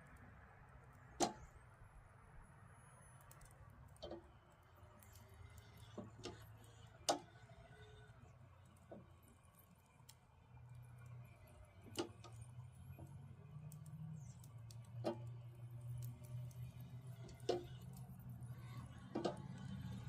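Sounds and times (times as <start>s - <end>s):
low steady hum: 0.0s - 20.0s
sharp clicks and knocks: 19.1s - 19.8s.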